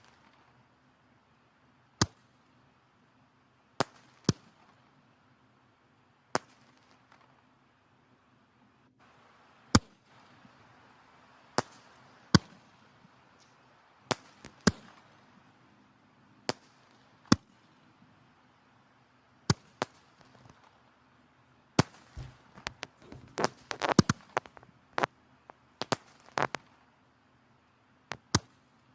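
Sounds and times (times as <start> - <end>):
firewood crackling and popping: 2.0 - 2.4, 3.8 - 5.0, 6.3 - 7.5, 9.0 - 27.1, 28.0 - 28.9.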